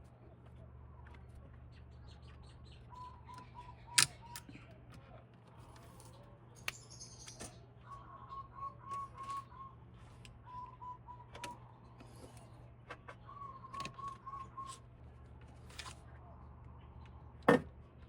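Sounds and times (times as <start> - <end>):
bird calling in quick notes: 6.7 - 11.9, 13.2 - 14.9.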